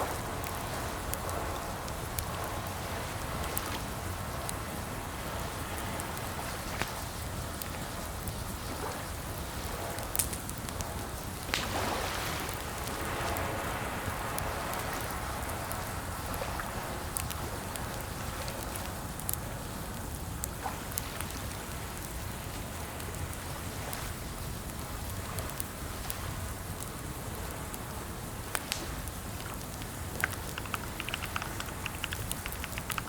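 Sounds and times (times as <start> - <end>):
steady rain hiss: 0.0 - 33.0
sharp clicks: 30.2 - 33.0.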